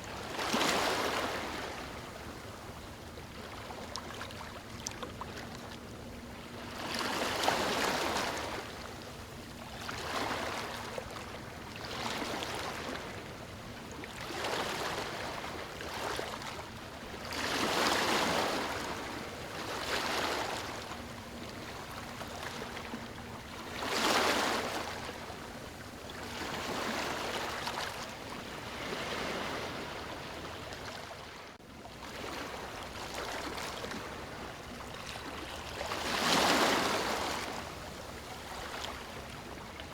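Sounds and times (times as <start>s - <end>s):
small waves breaking on beach: 0.0s - 2.2s, 26.2s - 39.9s.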